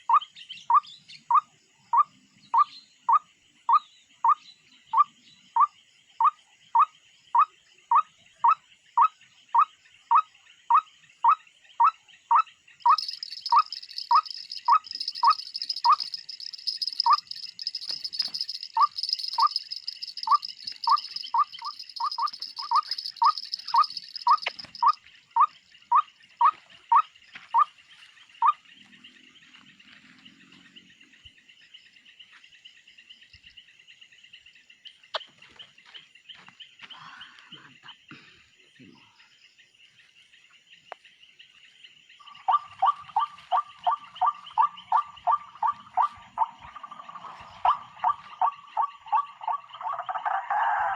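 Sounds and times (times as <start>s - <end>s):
insect chorus: 12.4s - 50.9s
high insect buzz: 12.9s - 25.0s.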